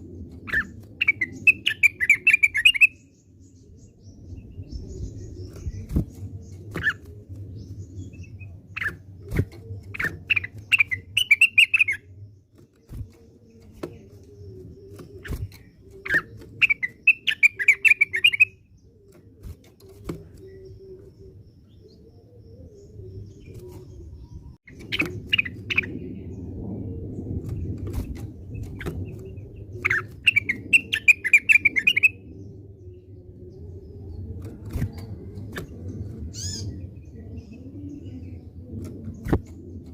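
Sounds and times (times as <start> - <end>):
bird singing chattering notes: 0.5 - 3.1, 7.6 - 12.1, 12.8 - 19.2, 29.8 - 32.3.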